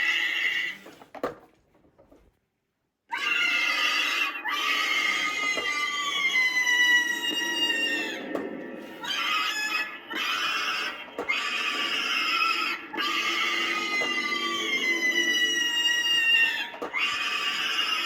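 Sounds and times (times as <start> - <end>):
recorded shrieking scream: 3.1 - 18.0
low steady rumble: 6.1 - 16.7.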